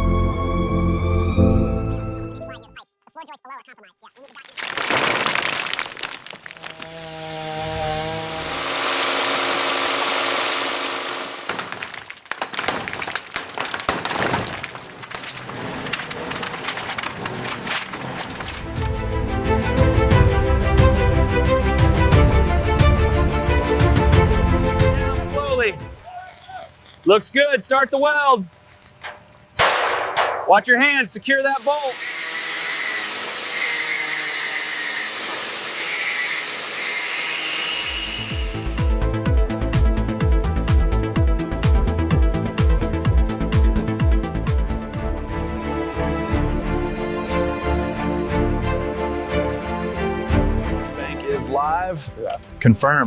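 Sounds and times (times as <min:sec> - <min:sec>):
debris cracking and breaking: 0:04.1 - 0:07.0, 0:11.2 - 0:19.0
power tool grinding: 0:05.2 - 0:18.9, 0:31.4 - 0:39.0.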